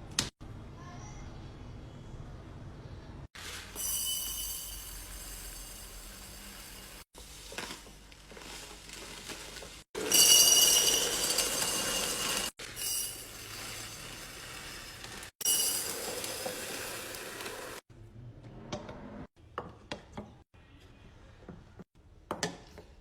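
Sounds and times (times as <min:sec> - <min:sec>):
jars clinking and rattling: 0:08.3 - 0:17.1.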